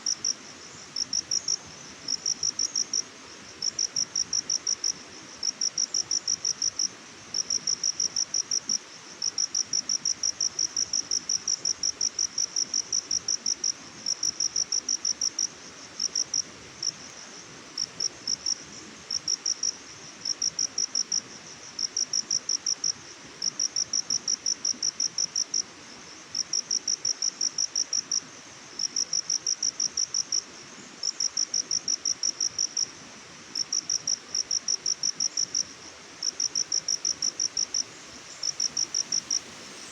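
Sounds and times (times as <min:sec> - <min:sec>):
cricket chirping: 0:00.0 - 0:39.9
steady background hiss: 0:00.0 - 0:39.9.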